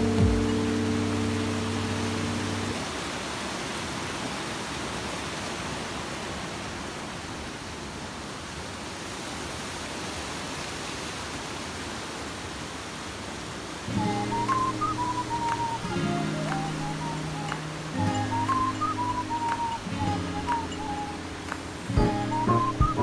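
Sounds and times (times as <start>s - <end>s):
melodic music: 0.0s - 2.8s, 13.9s - 23.0s
mountain stream rushing: 0.0s - 23.0s.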